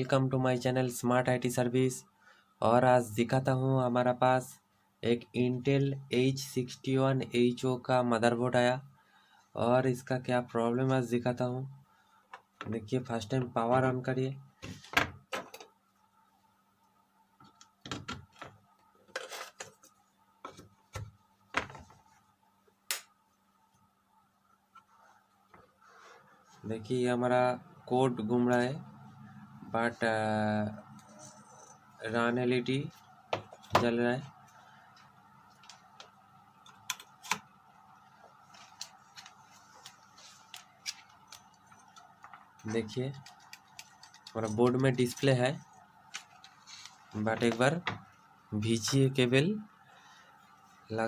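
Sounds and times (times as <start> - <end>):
faint electrical hum: 0.0 - 51.0
hands handling computer parts: 17.4 - 22.2, 33.3 - 48.2.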